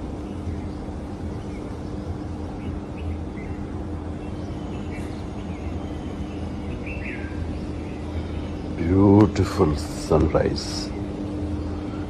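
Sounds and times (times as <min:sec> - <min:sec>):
faint even hum: 0:00.0 - 0:12.0
steady low rumble: 0:00.0 - 0:12.0.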